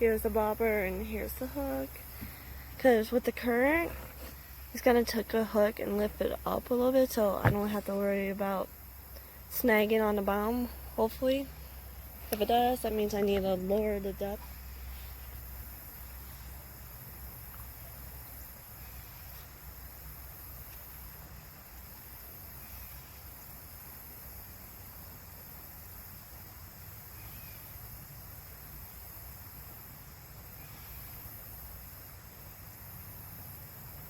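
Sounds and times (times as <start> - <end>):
faint insect drone: 0.0 - 34.0.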